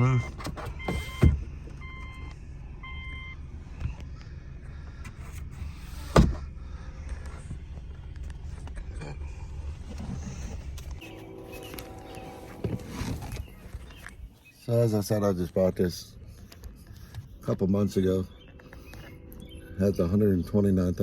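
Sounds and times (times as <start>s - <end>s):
car warning chime beeps: 0.0s - 3.5s, 17.7s - 21.0s
car engine hum: 0.0s - 21.0s.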